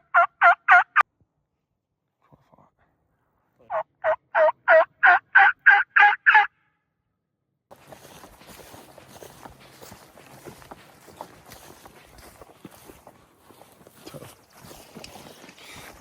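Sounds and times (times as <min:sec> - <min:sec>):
turkey yelping: 0:00.0 - 0:01.0, 0:03.7 - 0:06.5.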